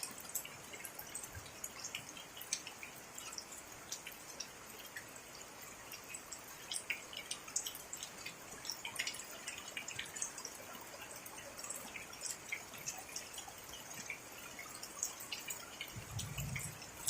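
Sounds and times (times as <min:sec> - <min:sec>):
rain hissing: 0:15.9 - 0:17.0.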